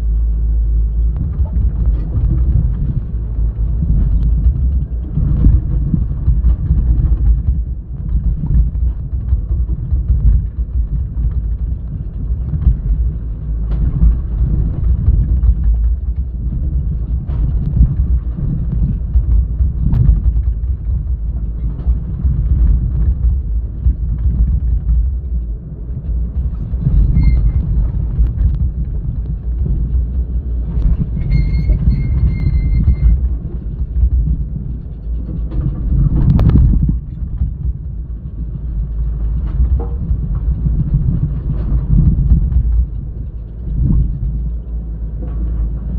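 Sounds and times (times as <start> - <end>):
excavator diesel engine rumbling: 0.0 - 45.9
high whine: 19.6 - 44.4.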